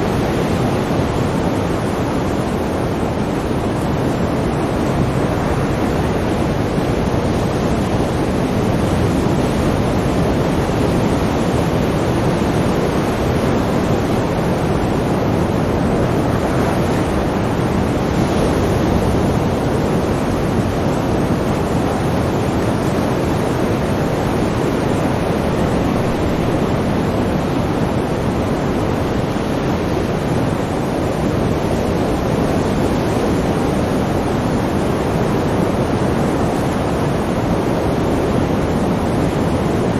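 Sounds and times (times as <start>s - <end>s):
sea waves washing: 0.0s - 39.9s.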